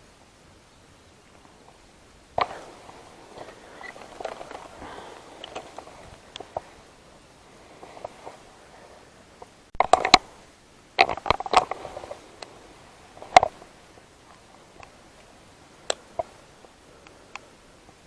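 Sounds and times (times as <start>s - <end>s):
sharp clicks and light knocks: 2.4s - 6.7s, 9.4s - 10.3s, 11.0s - 12.6s, 13.2s - 18.0s.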